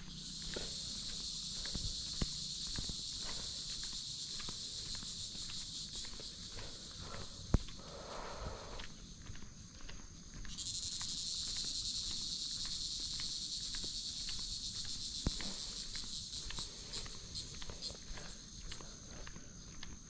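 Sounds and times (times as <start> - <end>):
high-pitched insect buzz: 0.0 - 8.8, 10.4 - 18.4
faint footsteps: 0.0 - 20.0.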